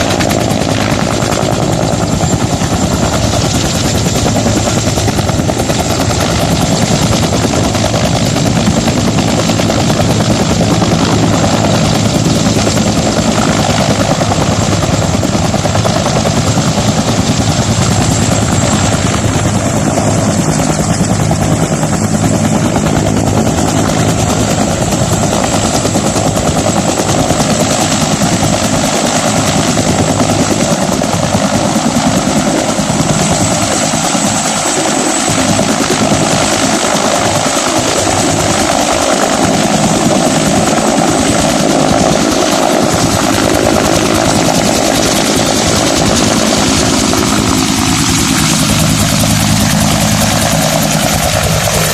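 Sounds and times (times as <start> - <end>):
helicopter rotor and engine: 0.0 - 51.9.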